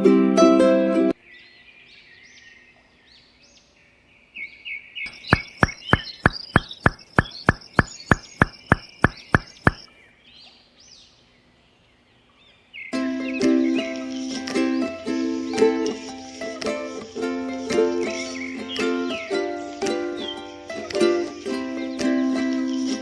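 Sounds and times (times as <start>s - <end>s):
birds chirping faintly: 1.2s - 23.0s
sharp regular knocks: 5.1s - 9.9s.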